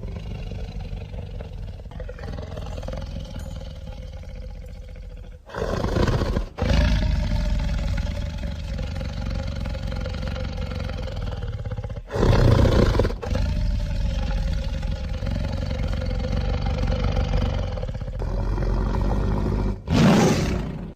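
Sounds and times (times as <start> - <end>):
creature growling and roaring: 0.0 - 20.9.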